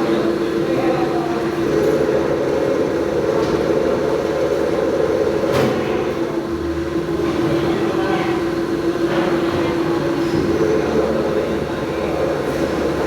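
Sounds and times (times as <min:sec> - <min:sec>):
milling machine humming: 0:00.0 - 0:13.0.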